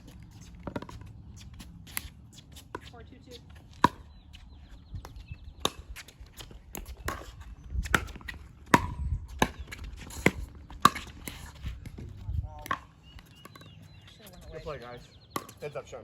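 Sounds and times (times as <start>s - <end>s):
ball bouncing on court: 0.0s - 4.2s, 6.7s - 14.4s, 15.3s - 15.6s.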